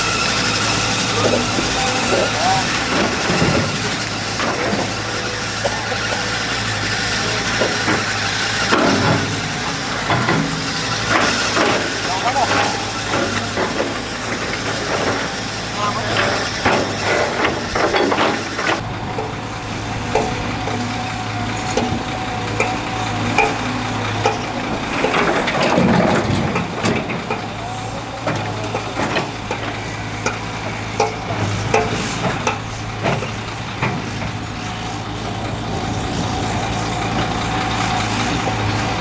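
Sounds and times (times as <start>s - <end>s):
clacks and knocks: 0.0s - 39.0s
power trowel engine running: 0.0s - 39.0s.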